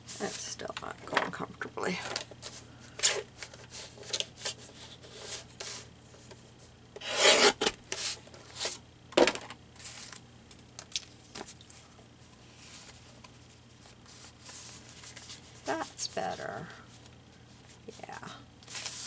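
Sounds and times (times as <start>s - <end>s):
paper scraping and rubbing: 7.0s - 8.8s.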